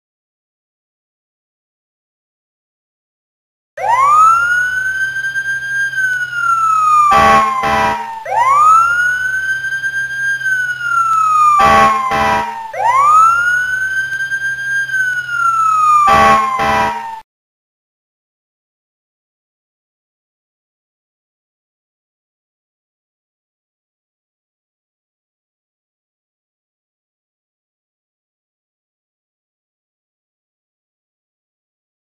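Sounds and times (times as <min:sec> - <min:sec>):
electronic warning siren: 0:03.8 - 0:17.2
short stuttering siren blasts: 0:03.8 - 0:17.2.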